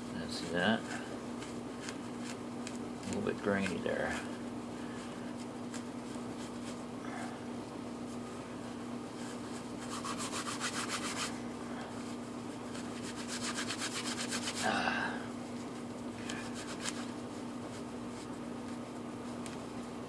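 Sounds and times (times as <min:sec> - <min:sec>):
bark fibers rubbed between hands: 0:00.0 - 0:06.9, 0:07.9 - 0:20.0
washing machine humming: 0:00.0 - 0:20.0.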